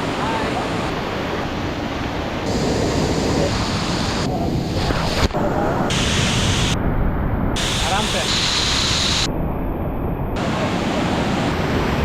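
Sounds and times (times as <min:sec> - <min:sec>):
waterfall rushing: 0:07.6 - 0:09.3, 0:10.4 - 0:12.0.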